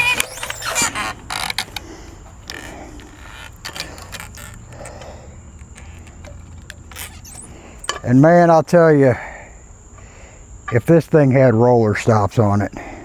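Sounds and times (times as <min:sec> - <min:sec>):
metal and wood clinking and knocking: 0:00.0 - 0:08.2.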